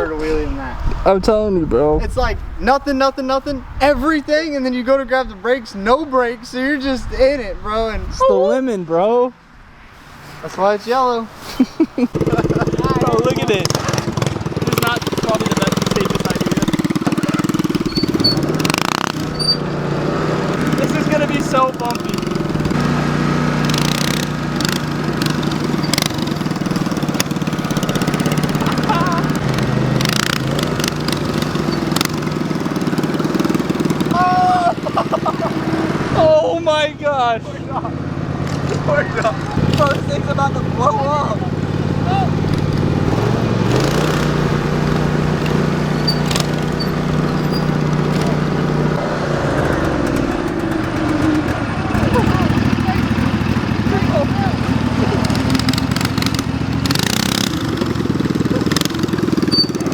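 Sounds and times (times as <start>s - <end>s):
small engine running: 12.1s - 36.8s, 37.4s - 59.9s
sharp knocks: 42.4s - 51.6s.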